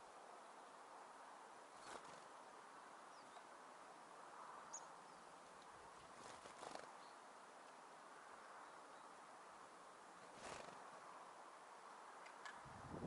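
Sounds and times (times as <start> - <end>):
outdoor background hiss: 0.0 - 13.0
songbird calls: 4.6 - 5.4.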